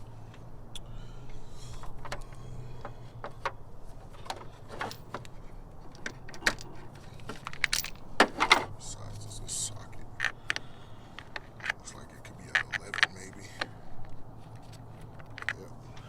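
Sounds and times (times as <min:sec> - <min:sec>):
metal hand tools clinking: 0:04.2 - 0:09.1.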